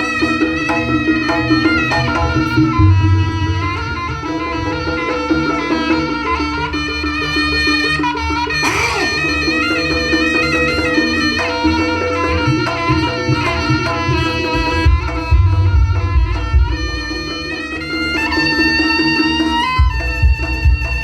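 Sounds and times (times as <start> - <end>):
gamelan: 0.0 - 21.0
reed shawm melody: 0.0 - 21.0
drums: 8.5 - 21.0.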